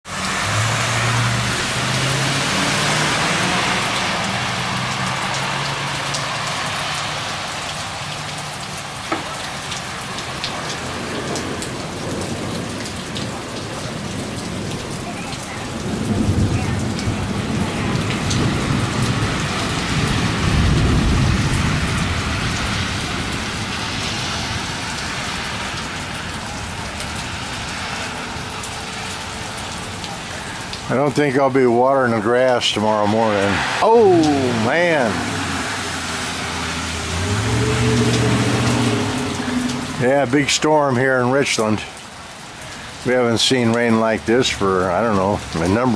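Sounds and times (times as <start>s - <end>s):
heavy rain pouring: 0.0s - 45.9s
thunder rumble: 10.0s - 28.4s, 33.2s - 40.4s.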